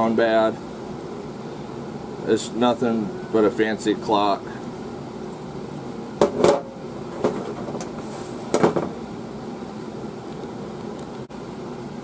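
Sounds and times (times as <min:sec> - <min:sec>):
hard objects knocking: 0:06.2 - 0:07.9, 0:08.5 - 0:09.0.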